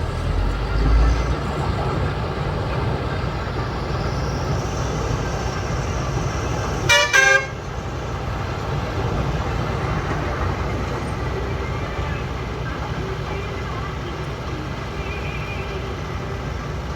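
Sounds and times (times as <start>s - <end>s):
diesel engine running: 0.0s - 16.9s
vehicle horn toots: 6.9s - 7.6s.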